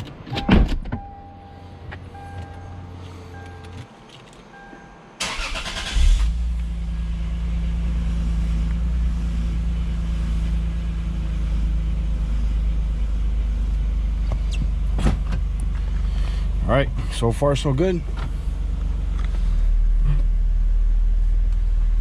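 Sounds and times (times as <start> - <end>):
road rumble: 0.0 - 4.6, 5.2 - 22.0
car engine running: 5.2 - 22.0.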